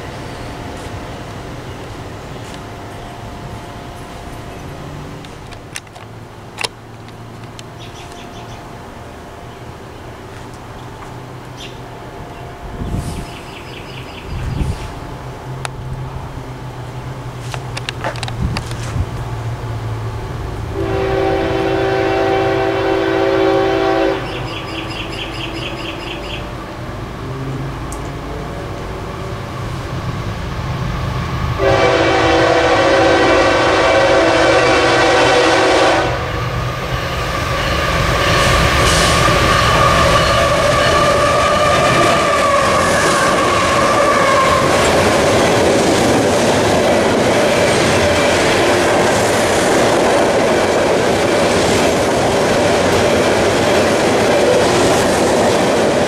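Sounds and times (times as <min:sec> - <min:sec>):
train wheels rumbling and clattering: 0:00.0 - 0:56.0
train horn blasts: 0:20.7 - 0:26.4, 0:31.6 - 0:36.4, 0:37.5 - 0:45.5.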